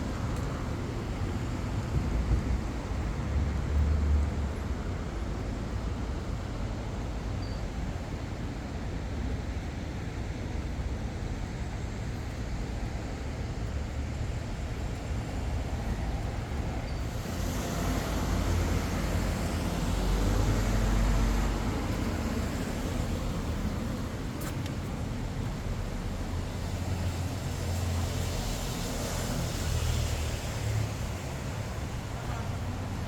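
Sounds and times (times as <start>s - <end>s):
traffic rumble: 0.0s - 33.0s
vehicle passing: 17.1s - 32.9s.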